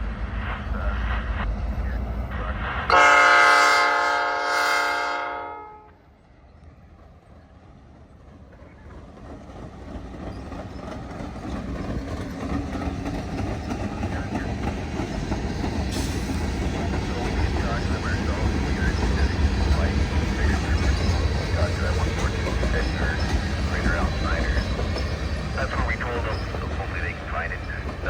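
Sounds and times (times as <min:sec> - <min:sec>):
train rumble: 0:00.0 - 0:28.0
locomotive air horn: 0:02.9 - 0:06.0.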